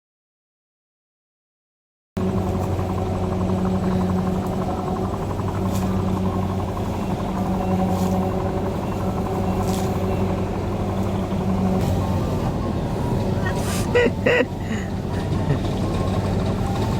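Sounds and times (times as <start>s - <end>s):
combine harvester engine running: 2.2s - 16.9s.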